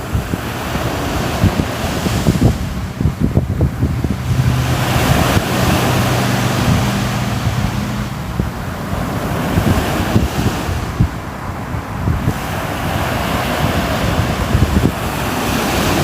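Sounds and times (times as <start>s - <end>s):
sea waves washing ashore: 0.0s - 16.0s
wind buffeting microphone: 0.0s - 16.0s.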